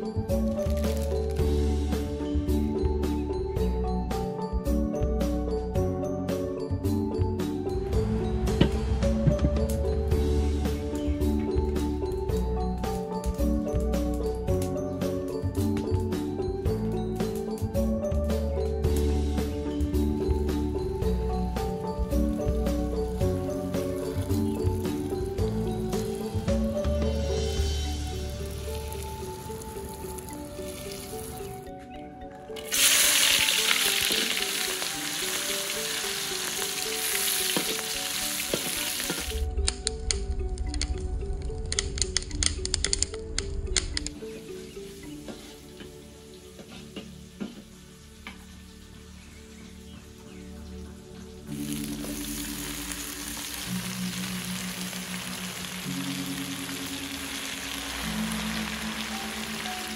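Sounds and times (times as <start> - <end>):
slow background music: 0.0 - 59.9
wood fire crackling: 0.3 - 1.6, 27.9 - 31.7, 51.4 - 59.9
loud sizzle in a wok: 13.8 - 31.4, 32.6 - 39.4, 44.3 - 59.9.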